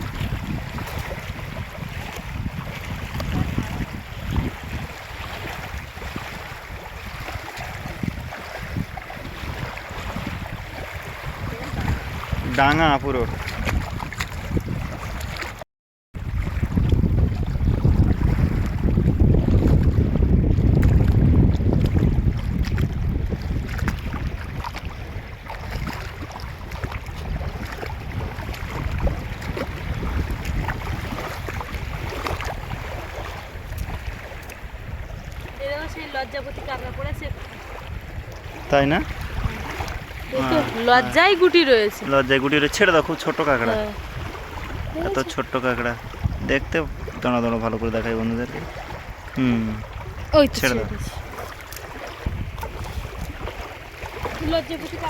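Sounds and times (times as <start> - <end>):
wind gusting on microphone: 0.0 - 15.6, 16.2 - 55.0
river water and small waves: 0.0 - 55.0.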